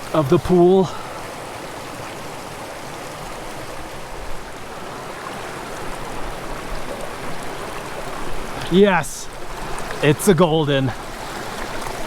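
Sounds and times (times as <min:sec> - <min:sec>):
creek running: 0:00.0 - 0:12.0.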